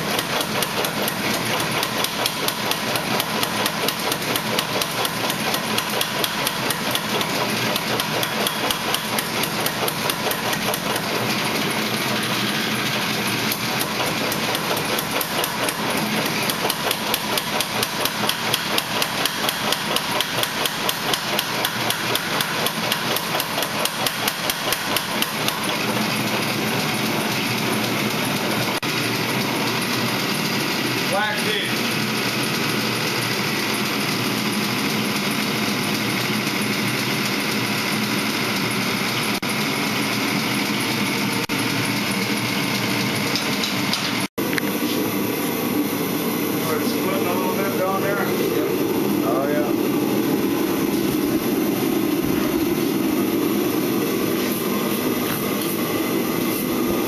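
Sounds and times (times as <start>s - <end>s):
hammer striking steel: 0.0s - 11.2s
steady running noise: 0.0s - 57.0s.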